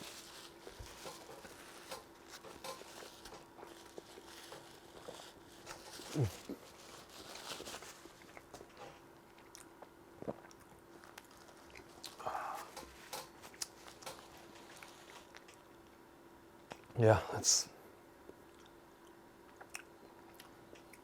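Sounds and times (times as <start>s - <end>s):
chewing and biting food: 8.0s - 15.7s, 18.4s - 21.0s.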